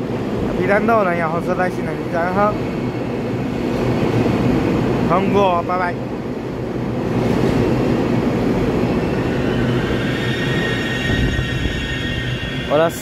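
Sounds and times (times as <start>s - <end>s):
train wheels rumbling on rails: 0.0s - 13.0s
thin high whine: 9.0s - 13.0s.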